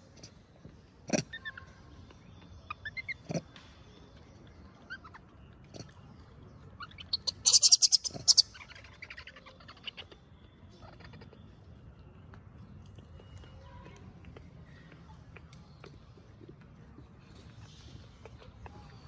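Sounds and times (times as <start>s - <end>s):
rapid animal chattering: 1.0s - 3.6s, 4.9s - 6.2s, 6.8s - 11.6s
high-pitched animal chirps: 6.8s - 10.2s.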